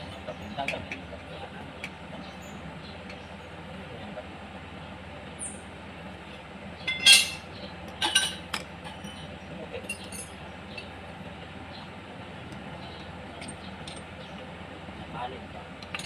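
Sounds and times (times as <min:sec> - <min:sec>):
steady low hum: 0:00.0 - 0:16.0
metal tools clinking: 0:06.9 - 0:07.4, 0:08.0 - 0:10.4.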